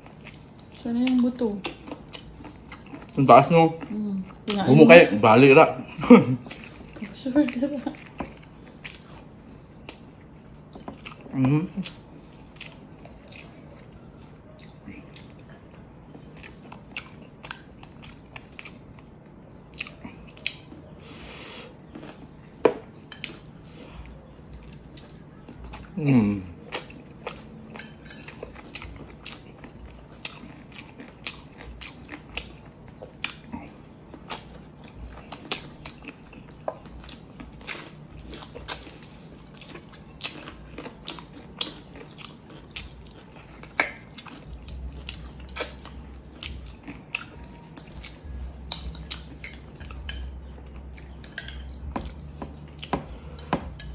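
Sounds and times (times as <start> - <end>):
wet chewing: 0.0 - 5.0, 6.4 - 20.9, 21.7 - 53.9
lip smacks: 43.7 - 44.1.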